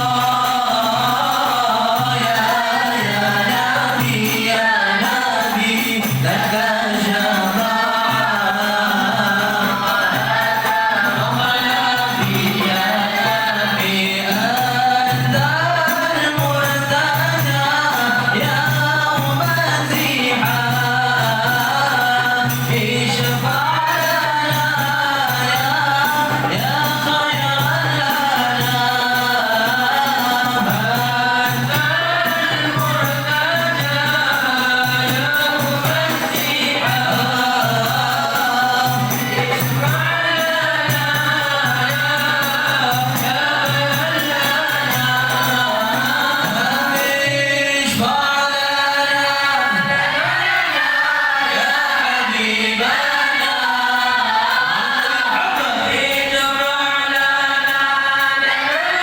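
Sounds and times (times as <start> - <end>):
group of voices chanting: 48.8 - 56.6.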